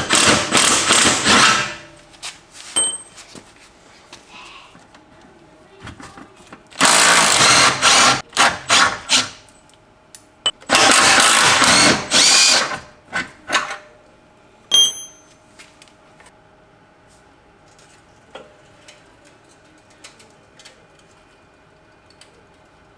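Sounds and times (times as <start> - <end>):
metallic ring: 2.8 - 3.2, 14.7 - 15.4
power tool whirring: 6.8 - 9.3, 10.7 - 12.8.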